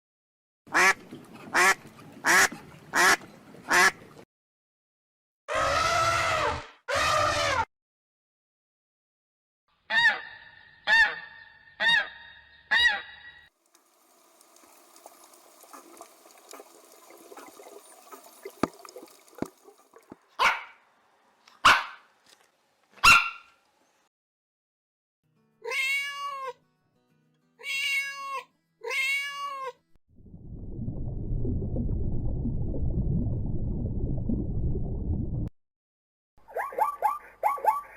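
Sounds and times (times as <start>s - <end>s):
meow-like calls: 25.6s - 26.6s, 27.6s - 29.8s.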